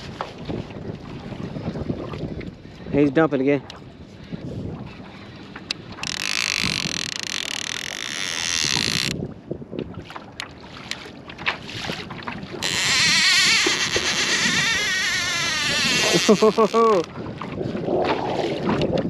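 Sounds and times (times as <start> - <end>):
fishing reel drag screaming: 6.0 - 9.1, 12.6 - 17.1.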